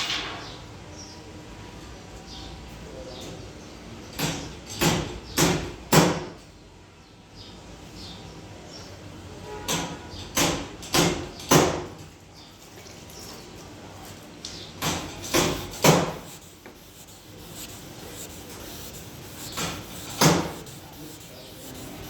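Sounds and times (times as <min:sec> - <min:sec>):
sandpaper rubbing on paintwork: 0:12.5 - 0:22.0.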